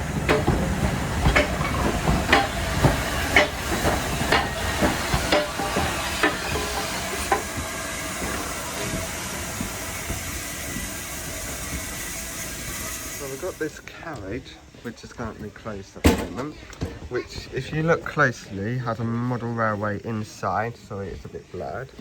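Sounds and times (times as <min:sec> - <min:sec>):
hiss of steam: 0:00.0 - 0:13.9
steam train knocking: 0:00.0 - 0:13.9.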